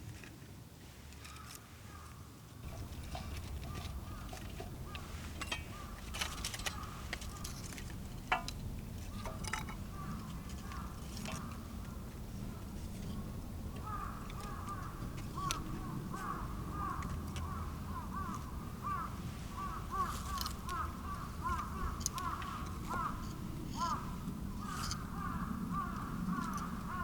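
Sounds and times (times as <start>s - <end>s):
flock of birds calling: 1.2s - 27.0s
low steady rumble: 2.5s - 27.0s.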